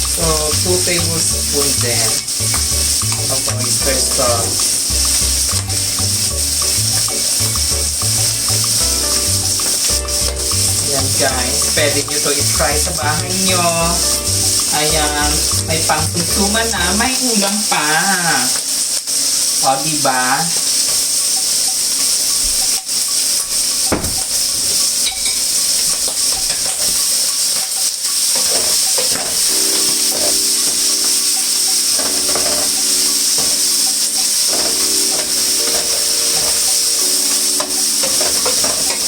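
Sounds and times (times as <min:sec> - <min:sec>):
background music with held notes: 0:00.0 - 0:17.2, 0:22.6 - 0:39.0
food sizzling in a frying pan: 0:00.0 - 0:39.0
utensil scraping a pan: 0:28.4 - 0:39.0.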